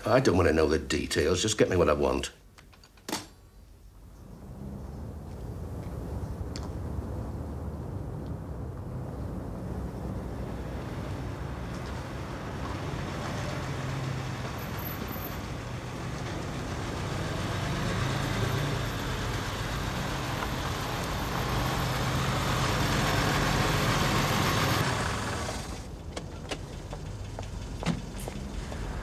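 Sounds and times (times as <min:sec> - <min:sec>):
car engine running: 0:18.2 - 0:29.0.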